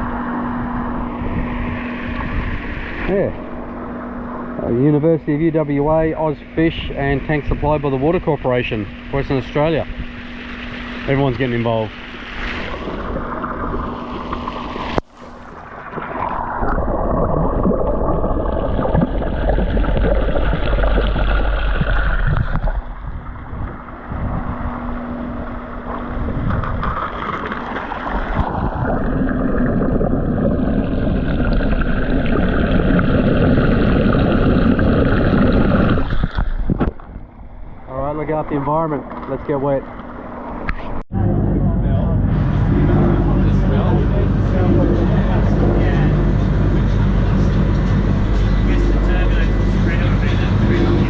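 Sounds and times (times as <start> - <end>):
wind on microphone: 0.0 - 4.8, 8.9 - 37.8, 40.6 - 51.0
low motor hum: 0.0 - 51.0
water rushing and gurgling: 0.0 - 51.0.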